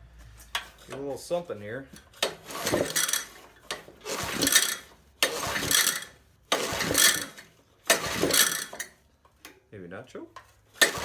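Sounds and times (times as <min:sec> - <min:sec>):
small engine recoil starter pulls: 0:02.1 - 0:09.0, 0:10.8 - 0:11.0.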